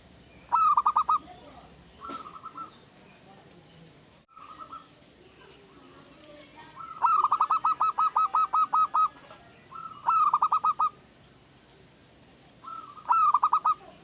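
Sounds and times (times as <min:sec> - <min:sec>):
dove cooing: 0:00.5 - 0:02.8, 0:04.3 - 0:05.0, 0:06.8 - 0:11.0, 0:12.6 - 0:14.0.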